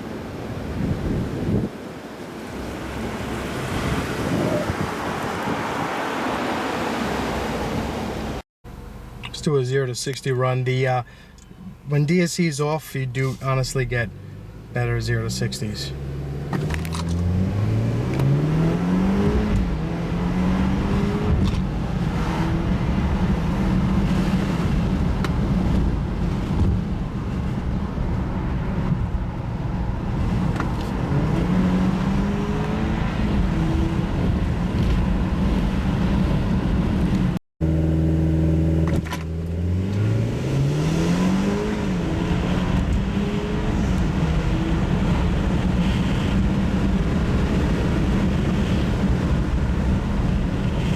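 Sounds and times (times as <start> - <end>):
car engine accelerating: 13.4 - 50.9.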